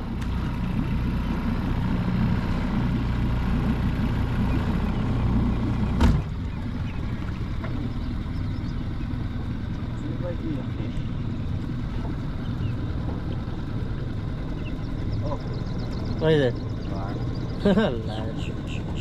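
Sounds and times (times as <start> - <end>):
boat engine humming: 0.0 - 19.0
sharp clunk: 6.0 - 6.3.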